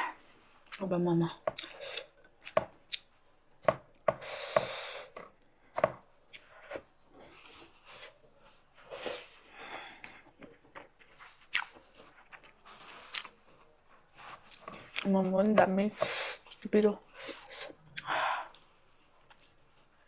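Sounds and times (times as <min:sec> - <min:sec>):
wet chewing: 0:00.7 - 0:05.2, 0:10.0 - 0:19.6.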